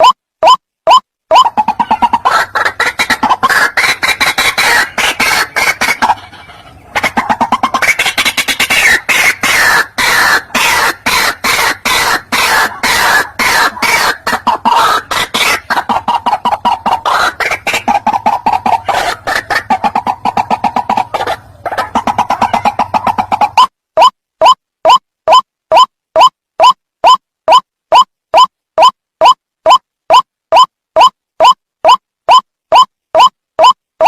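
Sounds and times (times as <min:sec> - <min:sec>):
bird croaking calls: 0:00.9 - 0:23.7.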